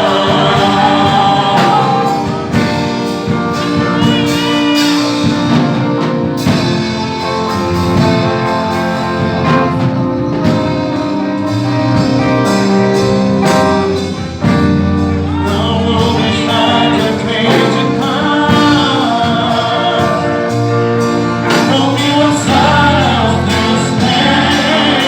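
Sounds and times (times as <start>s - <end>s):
gospel band playing: 0.0s - 25.0s.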